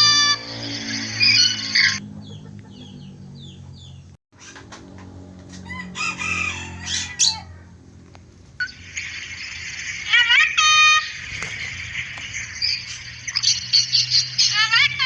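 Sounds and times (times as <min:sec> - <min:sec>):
harsh bird calls: 0:00.4 - 0:04.7, 0:06.0 - 0:07.7, 0:11.0 - 0:15.0
bird chirps: 0:00.5 - 0:04.6.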